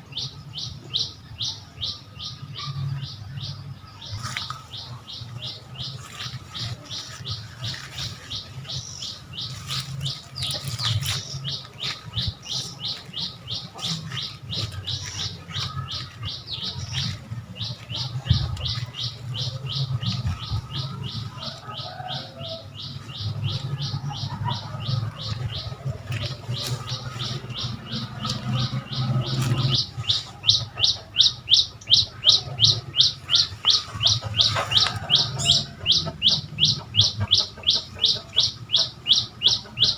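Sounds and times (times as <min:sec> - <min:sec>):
bird chirping: 0:00.0 - 0:39.9
steady low hum: 0:00.0 - 0:39.9.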